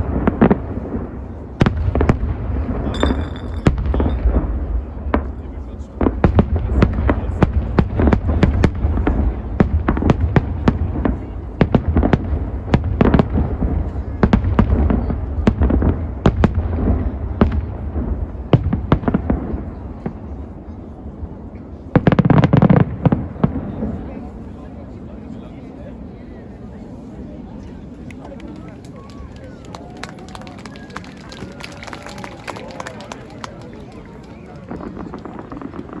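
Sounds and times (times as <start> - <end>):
firework shell bursts banging: 2.9 - 4.5
continuous low rumble: 22.8 - 36.0.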